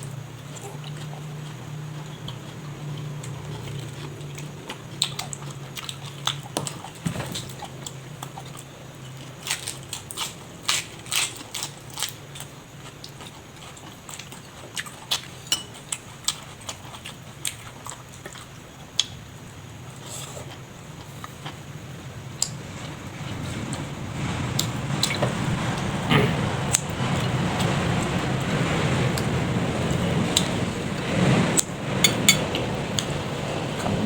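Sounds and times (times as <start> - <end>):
person chewing food: 0.4 - 7.0, 7.7 - 19.2
low hum: 22.5 - 34.0.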